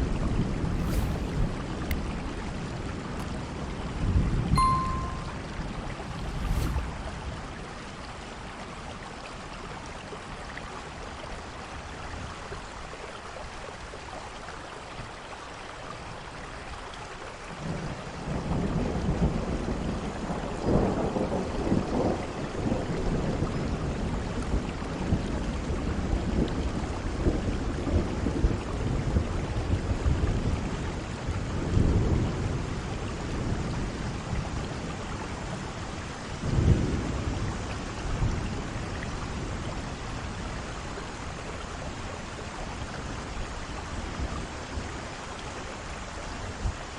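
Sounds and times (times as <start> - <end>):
heavy rain hissing: 0.0 - 4.3, 6.0 - 9.0.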